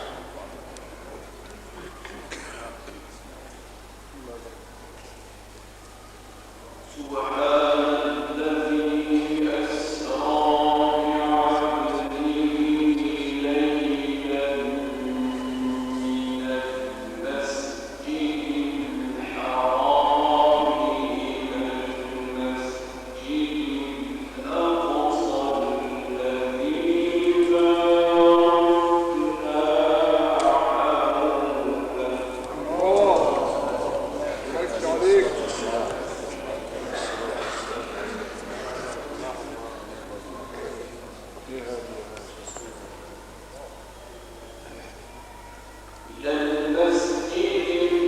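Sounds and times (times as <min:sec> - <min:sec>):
man reciting melodically: 0:06.8 - 0:42.2, 0:46.1 - 0:48.0.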